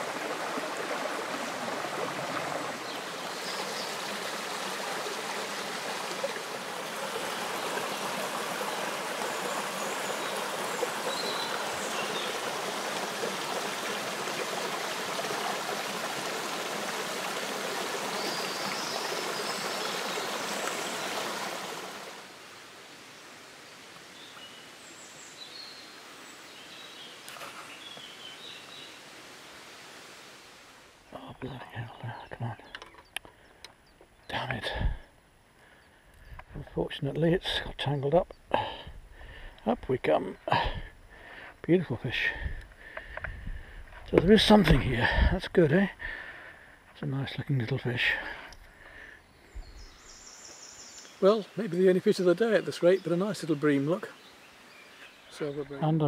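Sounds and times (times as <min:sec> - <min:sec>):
river water rushing: 0:00.0 - 0:31.1
faint bird chirps: 0:48.9 - 0:51.6.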